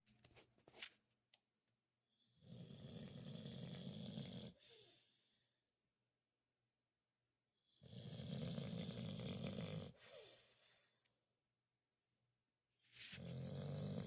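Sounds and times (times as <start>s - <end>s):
dog snoring: 2.3s - 5.2s, 7.7s - 10.5s, 13.1s - 14.0s.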